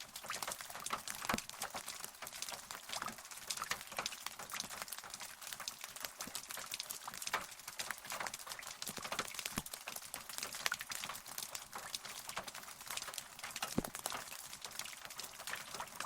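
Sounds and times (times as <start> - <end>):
rain drops pattering: 0.0 - 16.0.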